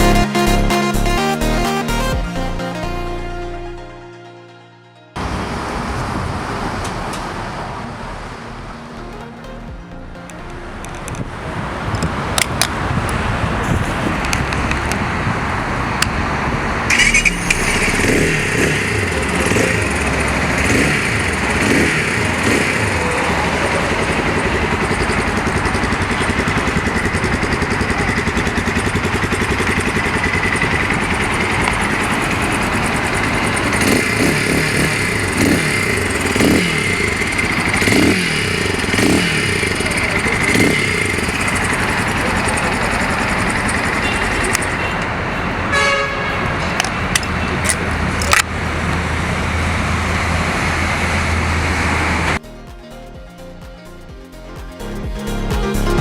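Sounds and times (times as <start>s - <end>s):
motorcycle engine revving: 5.2s - 7.9s, 10.3s - 52.4s.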